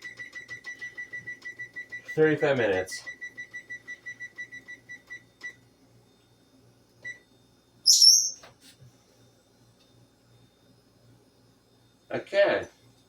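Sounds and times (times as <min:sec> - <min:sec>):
oven control beeps: 0:00.0 - 0:05.6, 0:07.0 - 0:07.3
bird whistled call: 0:07.9 - 0:08.4.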